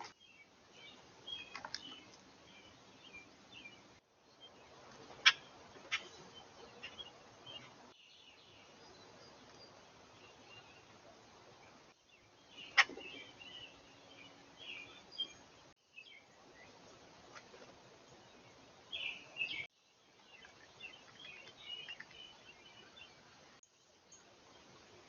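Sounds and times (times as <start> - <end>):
steady outdoor hiss: 0.0 - 25.0.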